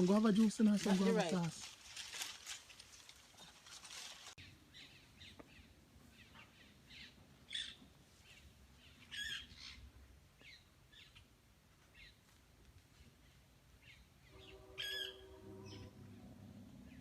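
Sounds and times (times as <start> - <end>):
birds chirping: 4.4 - 12.2.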